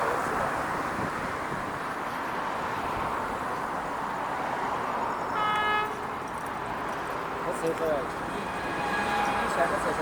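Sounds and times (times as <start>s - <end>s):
freight train wheels rushing: 7.4s - 10.0s.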